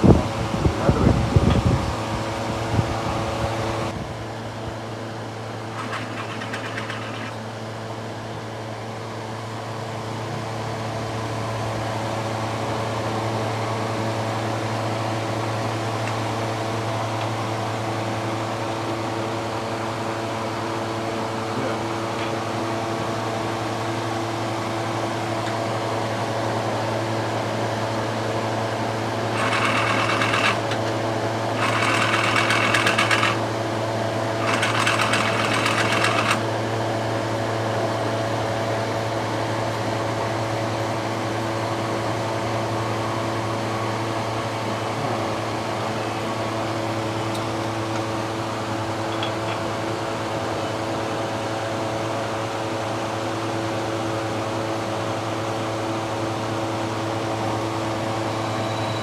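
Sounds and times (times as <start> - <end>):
machine humming: 28.7 - 36.4.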